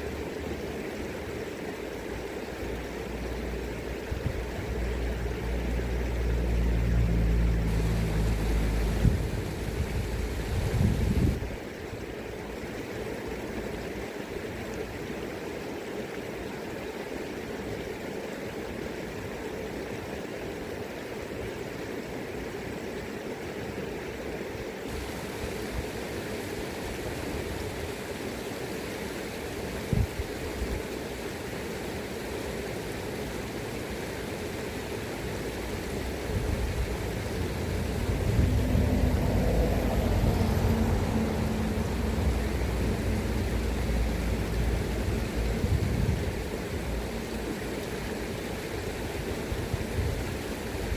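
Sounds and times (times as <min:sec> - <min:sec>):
river current rushing: 0:00.0 - 0:50.9
wind on microphone: 0:07.7 - 0:11.6, 0:36.0 - 0:47.3, 0:49.2 - 0:50.9.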